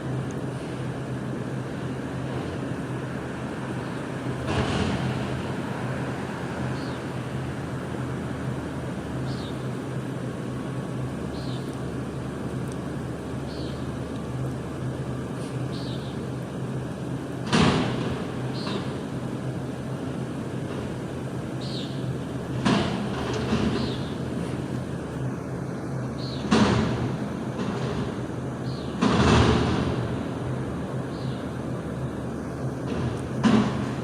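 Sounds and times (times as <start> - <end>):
garbage truck engine running: 0.0 - 34.0
metal dumpster banging: 26.4 - 30.7.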